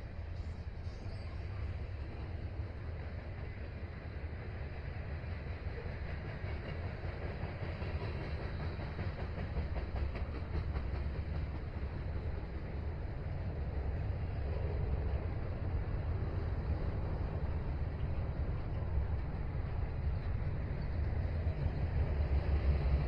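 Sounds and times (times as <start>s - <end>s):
freight train cars rumbling past: 0.0s - 23.0s
wheels clicking over rail joints: 5.4s - 14.3s.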